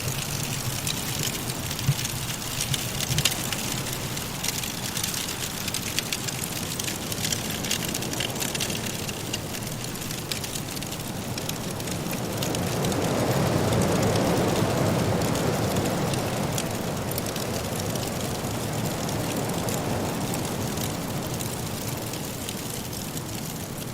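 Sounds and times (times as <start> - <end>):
wood fire crackling: 0.0 - 23.9.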